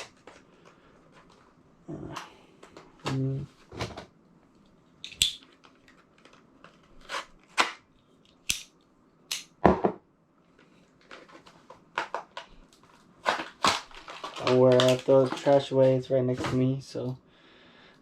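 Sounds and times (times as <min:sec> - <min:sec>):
wrapping rustling: 0:05.4 - 0:08.2, 0:10.5 - 0:16.6.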